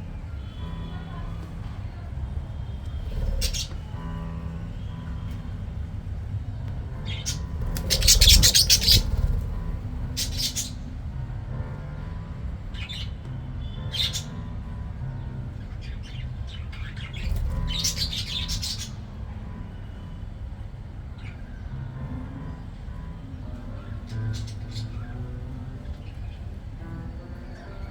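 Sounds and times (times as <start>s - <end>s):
budgies chirping and squawking: 2.8s - 5.6s, 7.0s - 11.0s, 15.6s - 19.0s.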